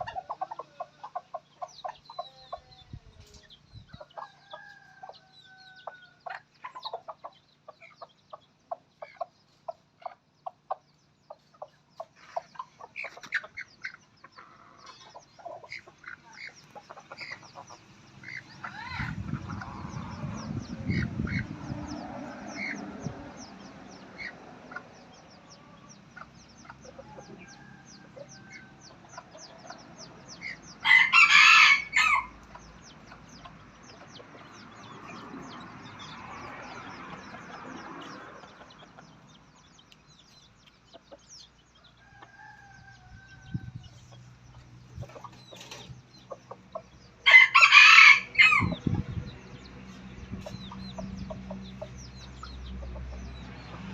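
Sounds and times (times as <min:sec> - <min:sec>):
chicken clucking: 0:00.0 - 0:47.6, 0:48.4 - 0:53.9
rooster crowing: 0:30.8 - 0:32.3, 0:42.0 - 0:43.8, 0:47.2 - 0:48.8.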